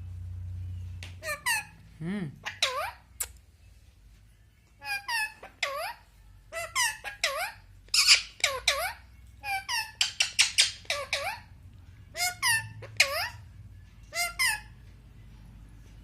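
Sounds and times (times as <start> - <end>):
parrot high-pitched calls: 1.2 - 1.8, 2.4 - 3.2, 4.8 - 14.8.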